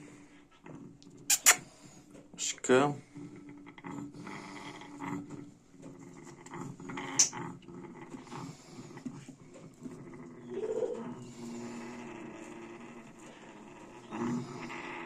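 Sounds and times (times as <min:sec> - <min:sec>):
parrot high squeak: 0:01.3 - 0:01.6
parrot making soft low sounds: 0:10.1 - 0:15.0.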